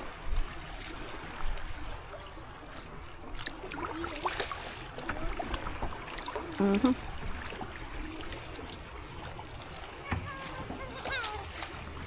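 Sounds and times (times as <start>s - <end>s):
small water splashes: 0.0s - 12.0s
water lapping against a hull: 0.0s - 12.0s.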